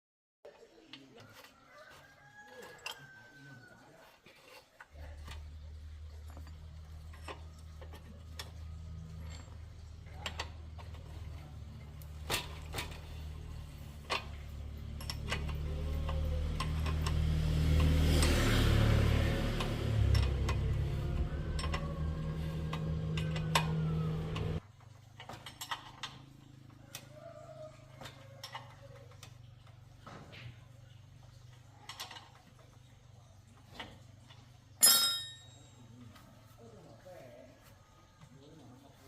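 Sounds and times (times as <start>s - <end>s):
motor humming: 10.8s - 24.6s.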